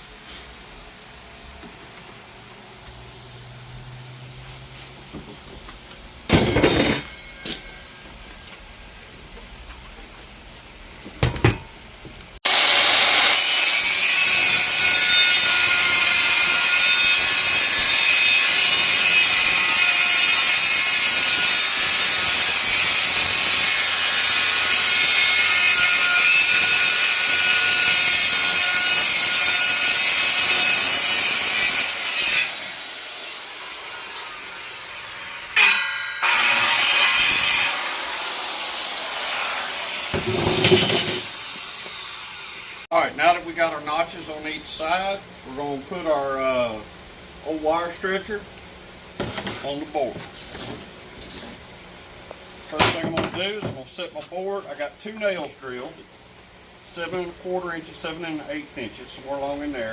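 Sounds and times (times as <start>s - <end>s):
power saw cutting wood: 12.4s - 42.9s.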